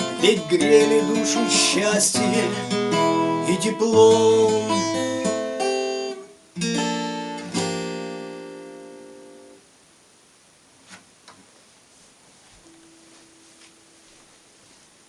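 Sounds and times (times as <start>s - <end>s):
acoustic guitar strumming: 0.0s - 9.6s.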